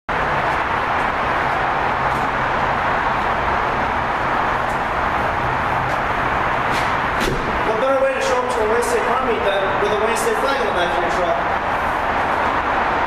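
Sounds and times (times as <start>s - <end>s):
vehicle rushing noise: 0.1s - 13.0s.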